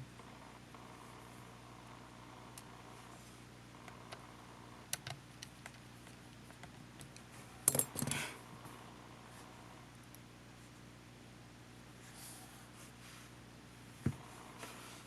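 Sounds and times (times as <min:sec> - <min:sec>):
tools clicking on small parts: 0:07.0 - 0:08.2.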